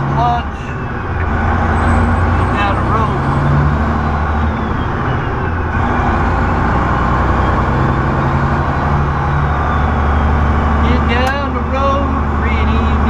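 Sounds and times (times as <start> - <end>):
diesel truck engine running: 0.0 - 13.0
road noise: 0.0 - 13.0.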